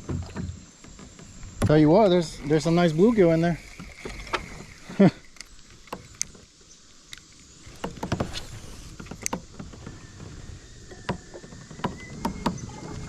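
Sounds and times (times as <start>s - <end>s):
gear knocking against kayak hull: 0.0s - 4.8s, 7.7s - 13.0s
low rumble of water: 0.0s - 13.0s.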